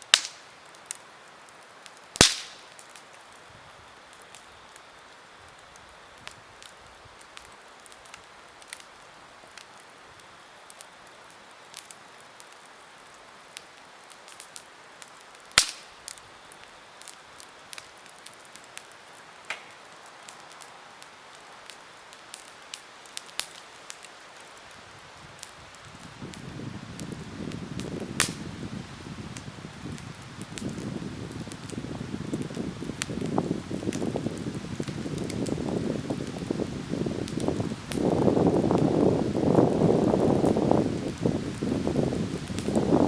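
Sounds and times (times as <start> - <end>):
campfire crackling: 0.0 - 43.0.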